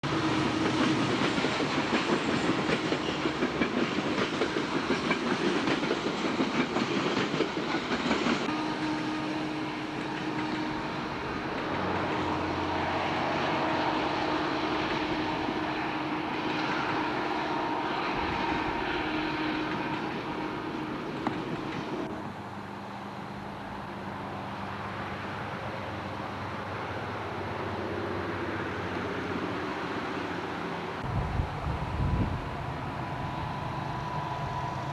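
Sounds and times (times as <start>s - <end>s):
train rumble: 0.0s - 34.9s
train wheels clattering over rail joints: 0.1s - 9.2s, 13.3s - 22.2s.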